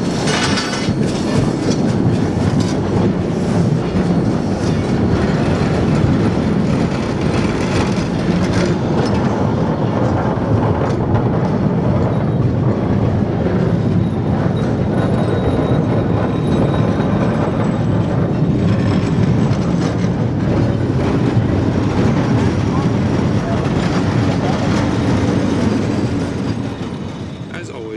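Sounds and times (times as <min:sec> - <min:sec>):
train wheels rumbling and clattering: 0:00.0 - 0:27.9.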